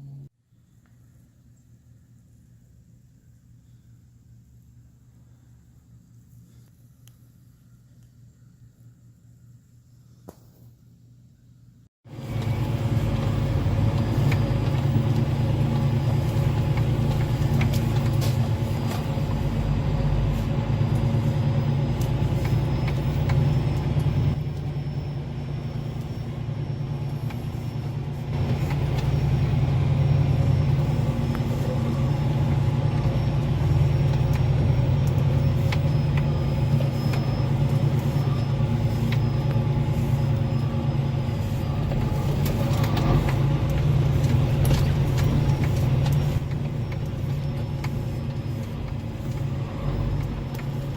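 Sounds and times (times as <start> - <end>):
truck engine and road drone: 0.0 - 9.7, 10.3 - 50.9.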